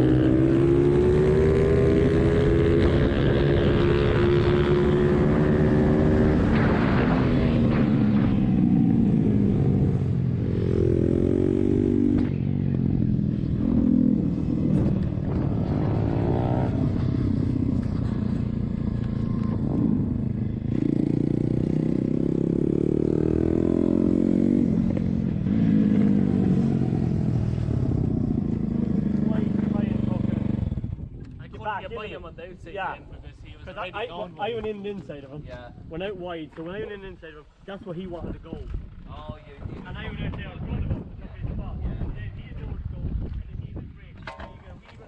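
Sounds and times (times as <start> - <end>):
motorbike engine accelerating: 0.0 - 31.4.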